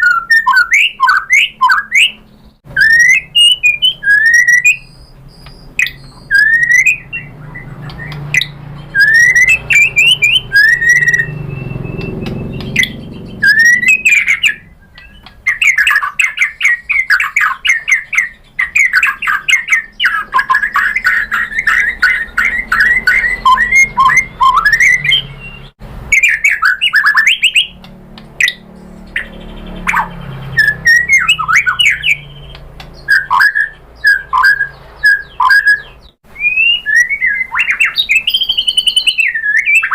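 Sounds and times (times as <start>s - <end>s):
bird singing whistled phrases: 0.0s - 27.8s, 28.4s - 39.9s
bird clicking notes: 7.8s - 16.6s, 29.9s - 33.6s.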